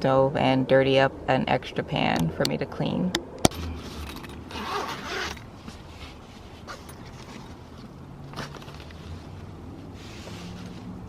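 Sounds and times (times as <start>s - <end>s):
zipper drawn open: 3.5s - 7.5s.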